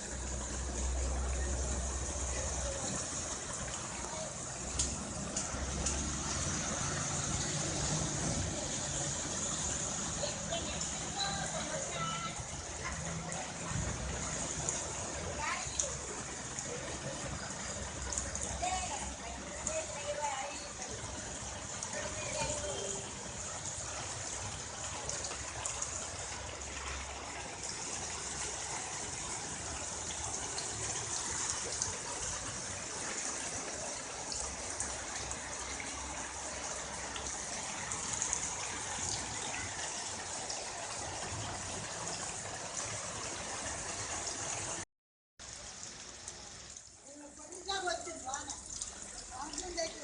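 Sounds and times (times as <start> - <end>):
heavy rain falling: 0.0 - 44.8, 45.4 - 50.0.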